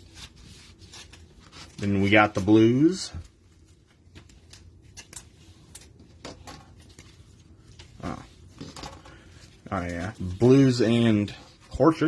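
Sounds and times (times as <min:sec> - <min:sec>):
low room hum: 0:00.0 - 0:12.0
trading cards being handled: 0:00.0 - 0:12.0.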